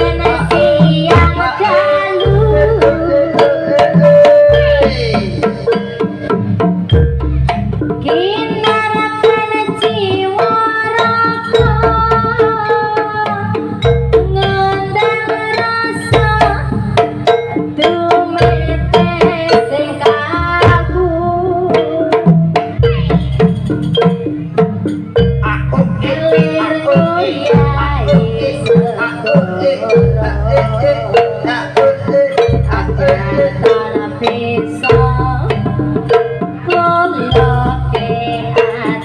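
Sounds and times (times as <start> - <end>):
hand drums driving rhythm: 0.0 - 39.0.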